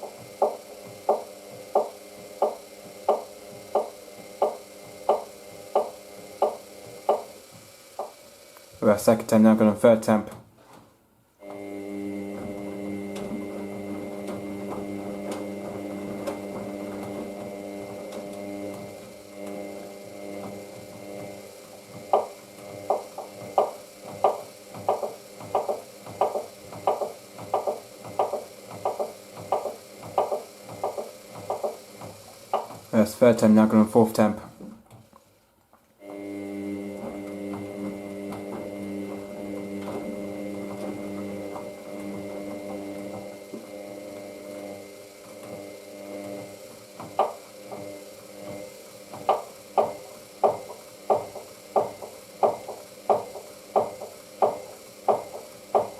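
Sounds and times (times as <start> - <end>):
washing machine motor whine: 0.0 - 55.9
laundry knocking in drum: 22.0 - 32.9, 48.5 - 55.9.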